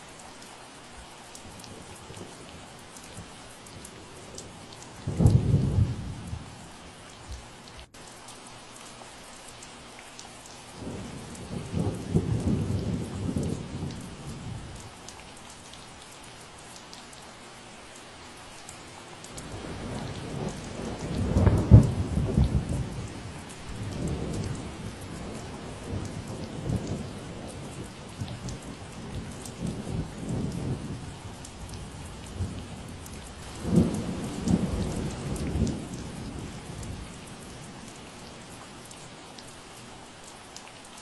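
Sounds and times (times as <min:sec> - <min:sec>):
steady rain: 0:00.0 - 0:41.0
rolling thunder: 0:05.0 - 0:06.6, 0:19.4 - 0:31.2, 0:31.9 - 0:37.6.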